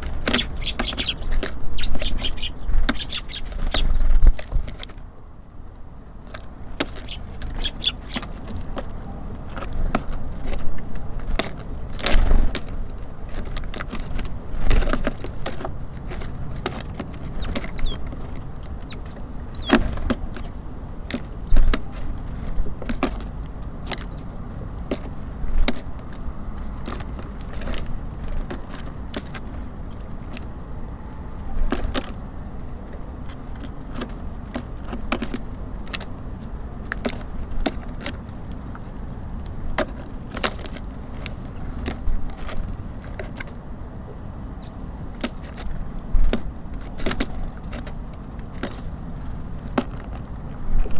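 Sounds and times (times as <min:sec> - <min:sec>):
birds tapping at feeder: 0:00.0 - 0:04.5, 0:06.8 - 0:09.0, 0:16.6 - 0:22.0
low rumble of city traffic: 0:00.0 - 0:50.9
bird chirp: 0:00.2 - 0:04.2, 0:06.9 - 0:08.3, 0:17.2 - 0:20.6, 0:44.5 - 0:44.8.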